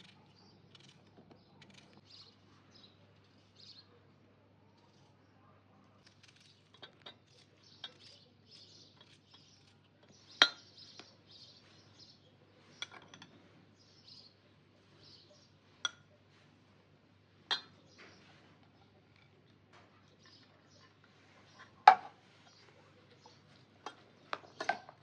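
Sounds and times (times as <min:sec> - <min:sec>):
faint bird chirps: 0:00.0 - 0:16.4, 0:17.6 - 0:19.2.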